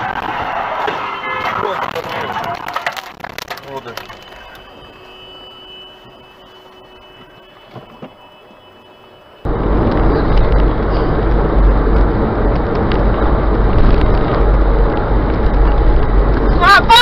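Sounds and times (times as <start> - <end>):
vehicle rumble and road noise: 0.0 - 17.0.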